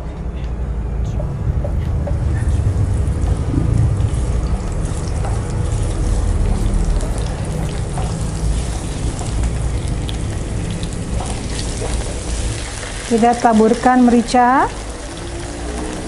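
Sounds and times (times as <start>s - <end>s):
mushrooms sizzling in oil: 4.0s - 16.0s.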